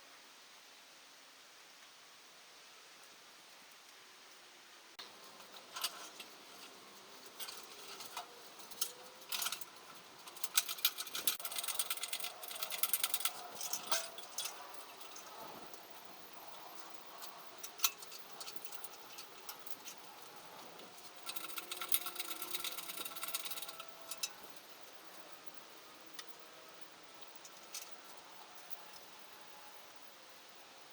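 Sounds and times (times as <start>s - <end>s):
metal tools clinking and rattling: 5.4s - 15.8s, 16.7s - 24.4s
rapid clicking: 5.5s - 15.8s, 16.4s - 24.3s.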